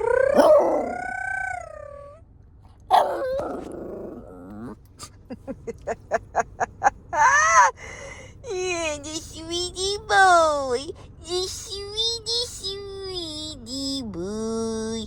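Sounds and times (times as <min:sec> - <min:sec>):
dog sharp cry: 0:00.0 - 0:01.8, 0:02.9 - 0:04.8
dog whining howls: 0:00.0 - 0:02.2, 0:02.9 - 0:04.8.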